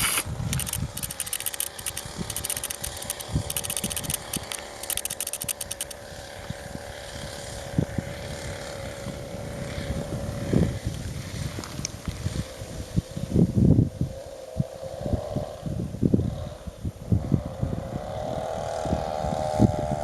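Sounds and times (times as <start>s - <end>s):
rapid fine clicking: 0.0s - 6.0s
two-stroke engine droning: 0.0s - 13.3s, 14.0s - 20.0s.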